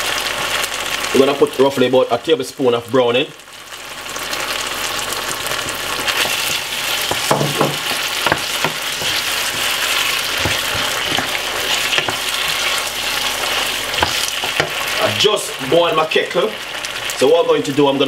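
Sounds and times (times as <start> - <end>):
vegetables sizzling in oil: 0.0 - 18.0
wooden spoon scraping a pan: 5.4 - 15.3.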